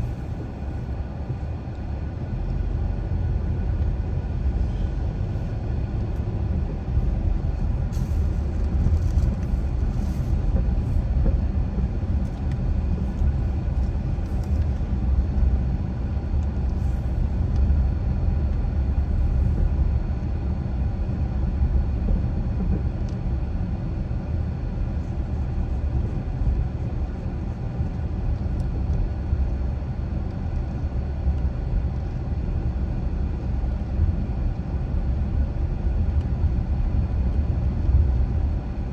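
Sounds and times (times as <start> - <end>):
car driving rumble: 0.0 - 20.7, 22.1 - 32.2.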